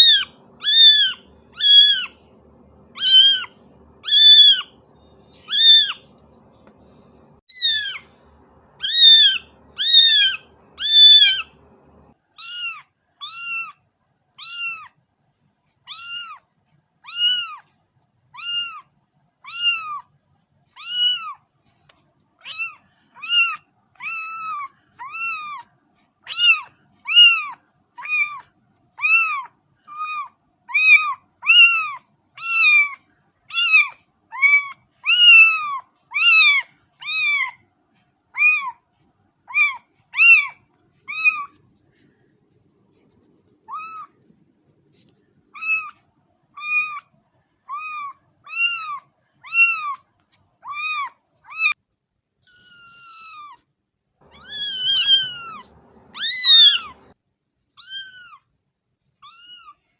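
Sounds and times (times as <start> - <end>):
cat meowing: 0.0 - 4.8, 5.4 - 6.1, 7.1 - 13.8, 14.4 - 15.0, 15.9 - 16.4, 17.0 - 17.7, 18.4 - 20.1, 20.8 - 21.4, 22.4 - 25.7, 26.3 - 28.4, 29.0 - 37.6, 38.4 - 38.8, 39.5 - 41.6, 43.2 - 44.2, 45.6 - 46.0, 46.6 - 47.1, 47.7 - 50.0, 50.6 - 51.8, 52.4 - 53.6, 54.3 - 57.1, 57.8 - 58.5, 59.2 - 59.8.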